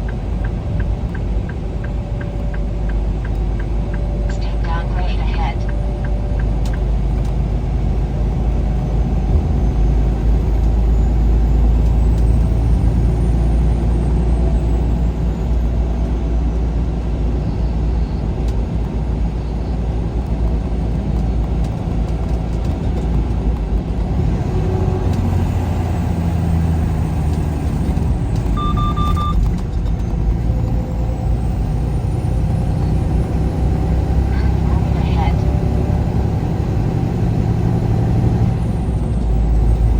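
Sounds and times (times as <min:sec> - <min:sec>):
road noise inside cab: 0:00.0 - 0:39.9
truck engine rumble: 0:00.0 - 0:39.9
short electronic beep: 0:28.6 - 0:29.4.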